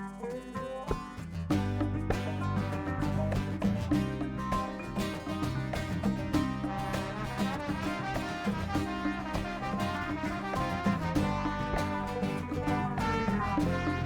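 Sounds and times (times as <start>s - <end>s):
live band playing: 1.5s - 14.0s
trombone line: 2.3s - 4.6s, 5.7s - 14.0s.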